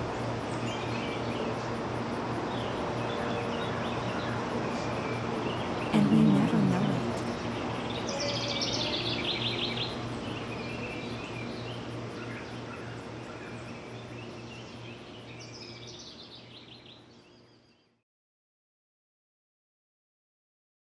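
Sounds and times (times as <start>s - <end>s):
outdoor background noise: 0.0s - 17.9s.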